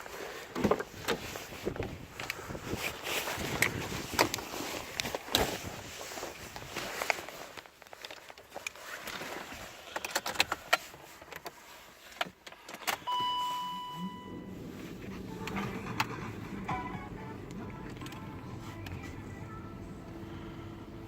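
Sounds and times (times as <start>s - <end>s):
steady electronic beep: 13.1s - 14.5s.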